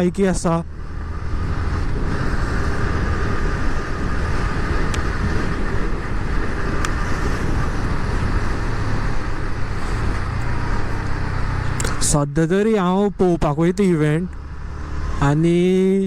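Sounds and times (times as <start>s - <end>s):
wind noise: 0.0s - 13.8s
motorcycle engine running: 0.0s - 15.9s
road rumble: 0.0s - 16.0s.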